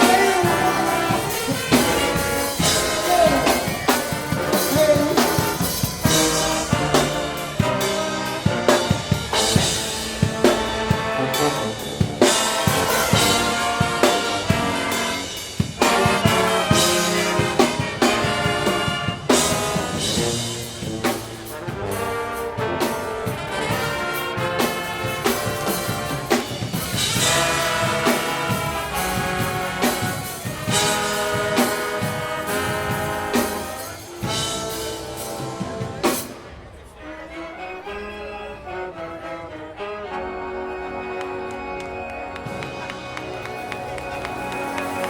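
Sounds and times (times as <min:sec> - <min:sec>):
brass section playing chords: 0:00.0 - 0:36.5
drumline drum hits: 0:00.0 - 0:36.6.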